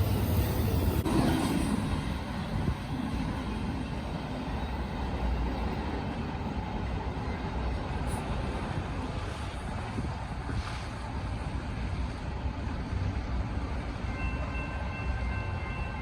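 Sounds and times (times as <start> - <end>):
train rumbling past: 0.0 - 16.0.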